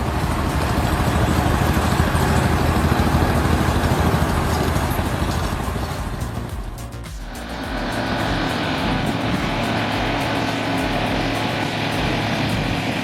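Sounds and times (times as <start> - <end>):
large engine rumbling: 0.0 - 13.0
loud hiss: 0.0 - 13.0.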